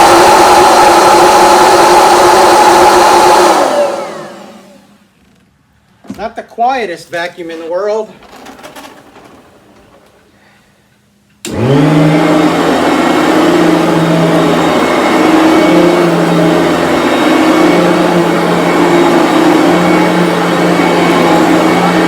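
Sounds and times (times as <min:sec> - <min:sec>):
vacuum cleaner running: 0:00.0 - 0:05.0, 0:11.4 - 0:22.0.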